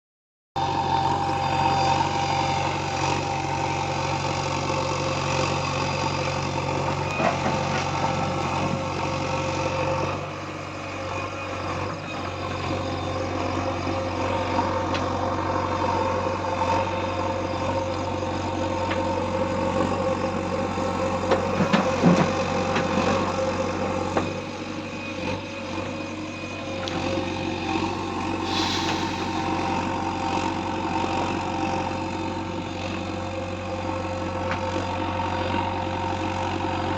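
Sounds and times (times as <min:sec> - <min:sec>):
heavy machine diesel engine: 0:00.6 - 0:36.9.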